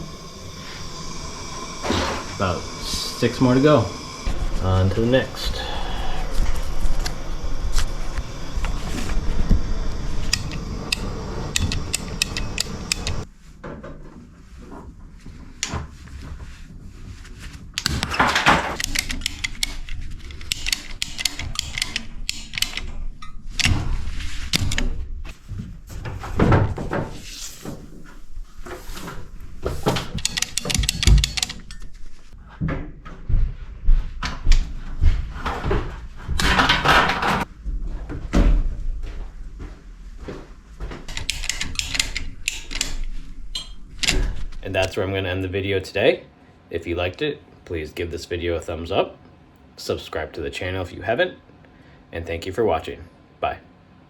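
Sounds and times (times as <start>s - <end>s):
dense steady noise: 0.0s - 13.3s
tools and pipe fittings clattering: 17.8s - 23.9s, 28.8s - 32.3s, 41.1s - 44.4s.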